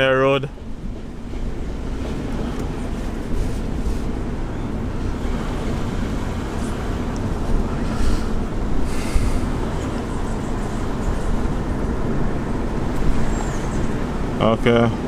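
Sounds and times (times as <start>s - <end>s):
car engine and tyre noise: 0.0s - 15.0s.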